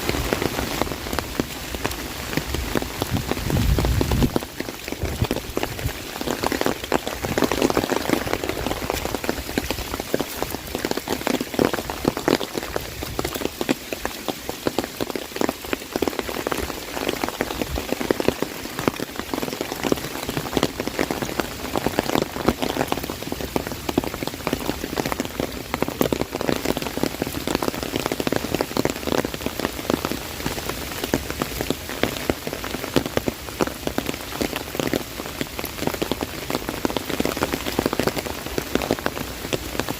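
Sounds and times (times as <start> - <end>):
heavy rain on an umbrella: 0.0 - 39.9.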